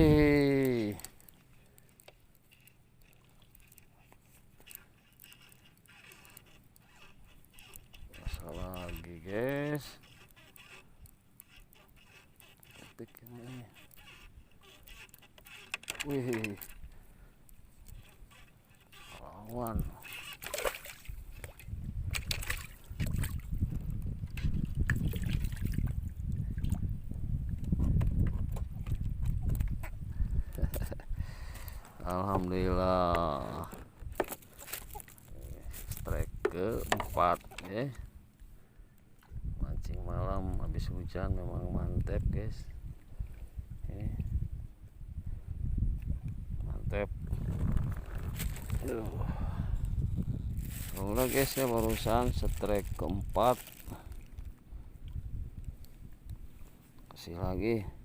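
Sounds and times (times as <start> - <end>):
water sloshing and splashing: 0.0 - 17.0, 17.7 - 30.0, 33.2 - 37.9, 47.3 - 49.1, 50.6 - 55.2
faint small clicks: 0.6 - 9.1.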